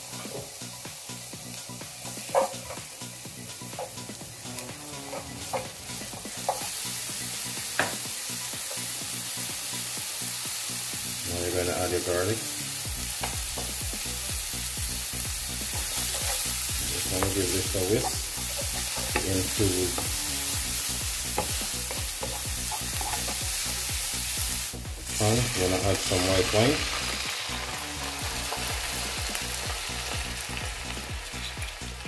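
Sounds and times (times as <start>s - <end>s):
onion sizzling in oil: 0.0s - 32.0s
spoon scraping and knocking pan: 2.2s - 2.9s, 5.0s - 6.7s, 15.6s - 20.2s, 21.2s - 23.4s.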